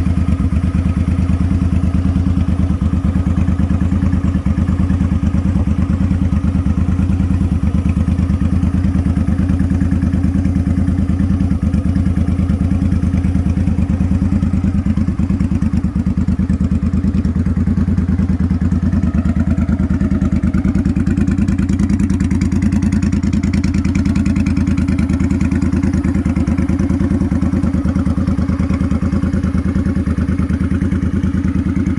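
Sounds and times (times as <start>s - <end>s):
motorcycle engine running steadily: 0.0s - 31.9s.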